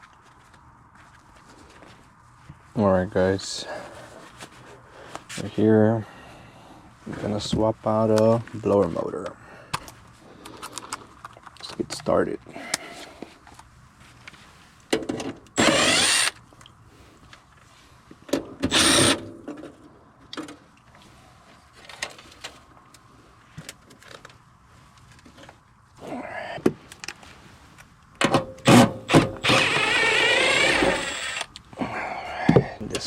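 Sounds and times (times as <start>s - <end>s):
cordless drill running: 15.6s - 16.4s, 18.7s - 19.2s, 28.6s - 31.5s.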